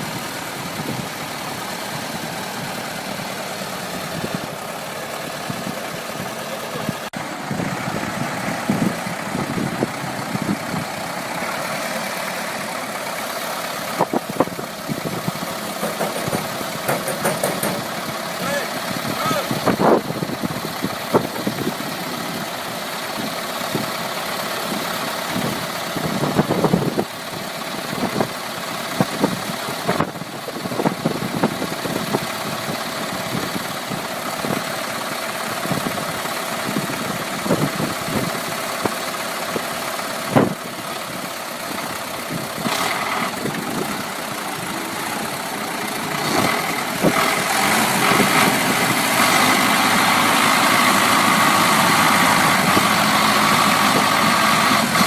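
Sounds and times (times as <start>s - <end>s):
vehicle engine running: 0.0s - 55.0s
knocks and clunks: 14.0s - 18.1s.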